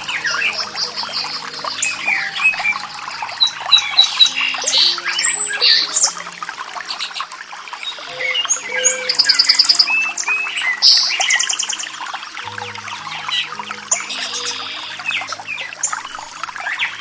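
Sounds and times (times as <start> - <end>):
birds singing and calling: 0.0 - 17.0
soft music of low held notes: 0.0 - 17.0.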